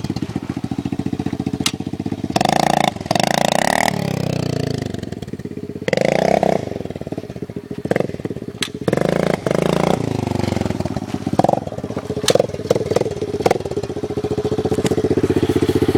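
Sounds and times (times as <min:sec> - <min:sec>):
dirt bike engine revving: 0:00.0 - 0:15.9
sharp engine cracks: 0:01.4 - 0:03.2, 0:08.5 - 0:09.0, 0:11.0 - 0:13.9.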